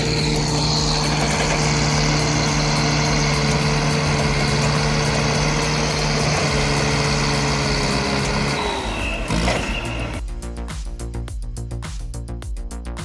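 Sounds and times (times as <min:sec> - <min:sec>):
heavy machine engine running: 0:00.0 - 0:10.2.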